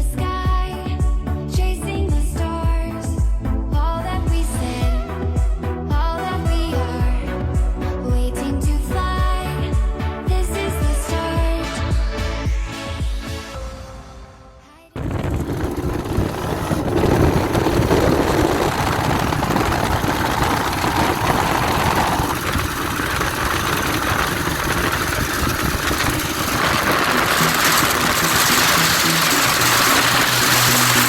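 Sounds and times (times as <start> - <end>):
two-stroke motorcycle engine running: 15.0 - 31.0.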